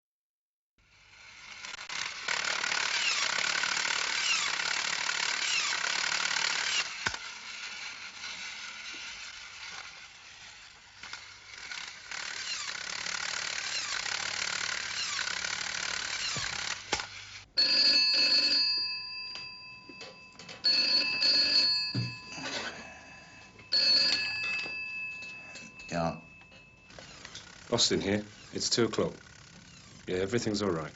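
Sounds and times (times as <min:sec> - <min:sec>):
telephone bell ringing: 0:17.6 - 0:28.6.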